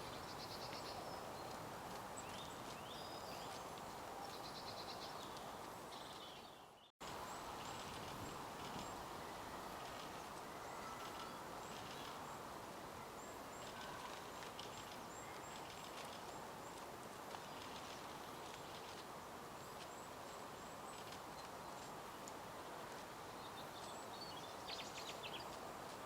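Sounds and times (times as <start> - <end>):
steady background hiss: 0.0 - 26.0
small birds chirping: 2.2 - 9.1, 23.2 - 25.7.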